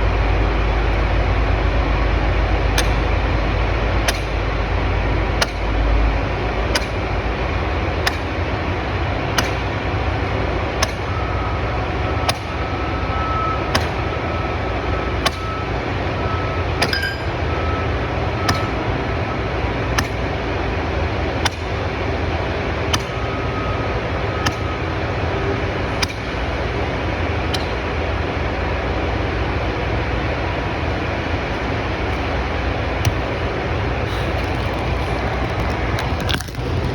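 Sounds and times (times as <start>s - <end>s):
sledgehammer striking steel pins: 16.8s - 17.4s.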